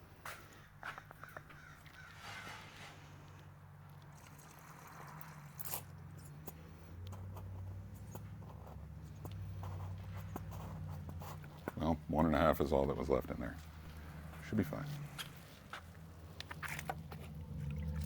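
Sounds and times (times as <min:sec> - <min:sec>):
rustle: 0:01.3 - 0:06.8
low hum: 0:13.6 - 0:18.0.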